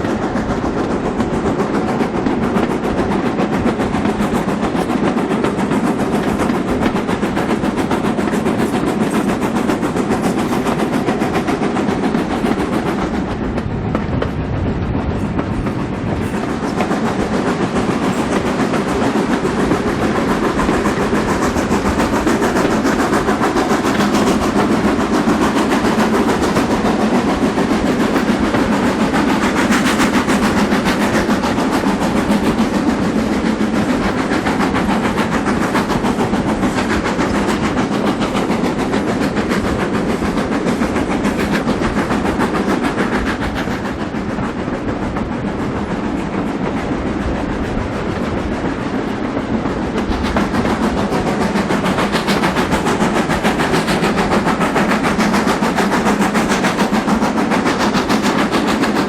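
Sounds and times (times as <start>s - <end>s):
rail noise: 0.0s - 59.0s
steam train rumble: 0.0s - 59.0s.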